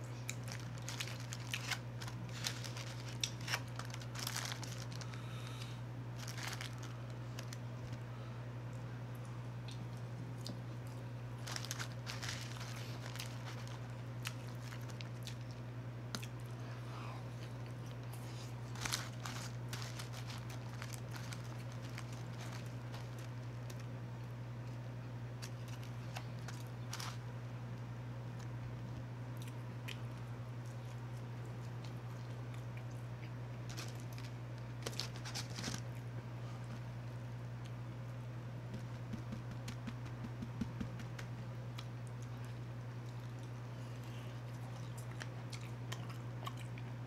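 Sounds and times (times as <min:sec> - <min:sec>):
chewing and crunching fries: 0:00.0 - 0:36.9, 0:41.0 - 0:47.0
steady low hum: 0:00.0 - 0:47.0
paper liner crinkling: 0:00.2 - 0:08.0, 0:11.4 - 0:15.6, 0:17.9 - 0:23.9, 0:25.4 - 0:27.2, 0:33.6 - 0:36.0.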